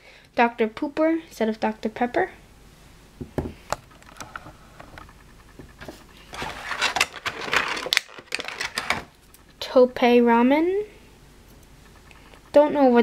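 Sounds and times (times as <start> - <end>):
plastic packaging crinkling: 6.2 - 9.2.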